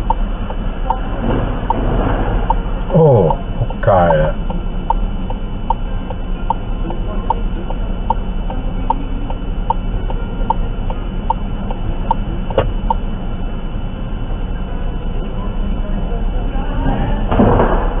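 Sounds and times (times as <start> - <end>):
car turn signal ticking: 0.0 - 1.0, 2.5 - 13.0
low cabin drone: 0.0 - 17.9.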